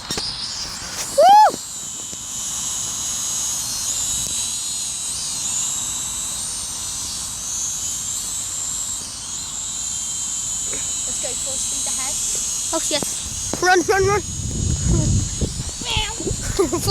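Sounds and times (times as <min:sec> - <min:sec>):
drone propellers whining: 0:00.0 - 0:16.9
person shouting woo: 0:01.2 - 0:01.6.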